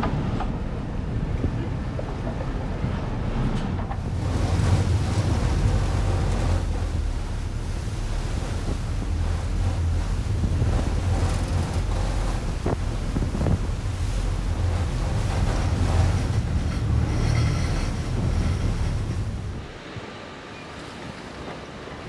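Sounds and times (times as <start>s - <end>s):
ferry engine rumbling: 0.0s - 19.8s
wind buffeting microphone: 0.0s - 19.8s
water rushing past hull: 0.0s - 22.0s.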